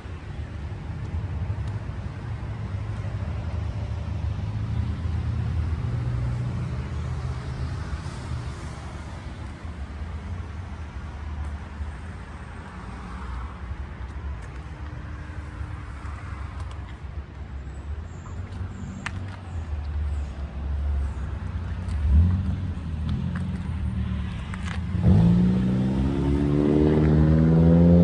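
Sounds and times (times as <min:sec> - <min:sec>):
vehicle engine idling: 0:13.7 - 0:25.0.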